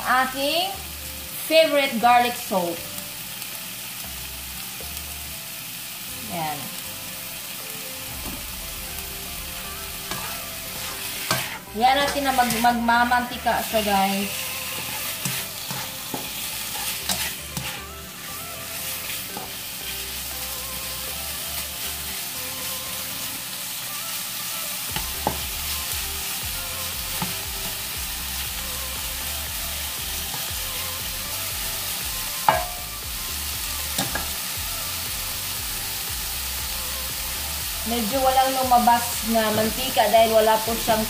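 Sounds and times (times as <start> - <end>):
meat sizzling in a pan: 0.0 - 41.0
sharp clinks against pan: 32.5 - 32.8.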